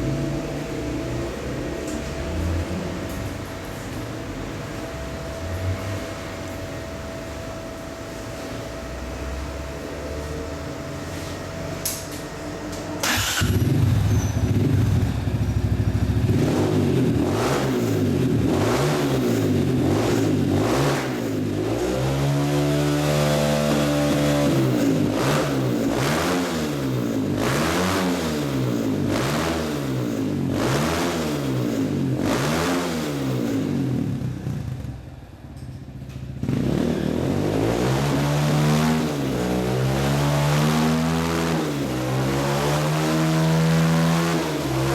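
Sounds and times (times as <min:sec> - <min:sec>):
dirt bike engine revving: 0:13.0 - 0:34.8, 0:36.4 - 0:44.9.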